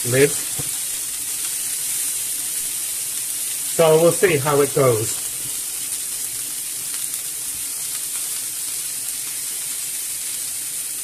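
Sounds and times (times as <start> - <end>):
chicken sizzling in frying pan: 0.0 - 11.0.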